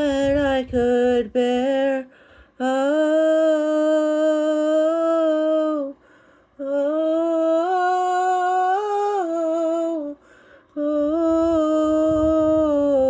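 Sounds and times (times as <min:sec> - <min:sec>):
woman singing long notes: 0:06.6 - 0:13.0.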